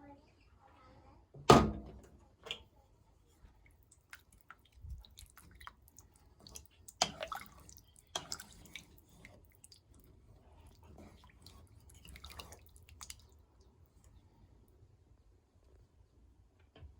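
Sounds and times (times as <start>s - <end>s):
sharp knocks in kitchen: 1.4s - 2.0s.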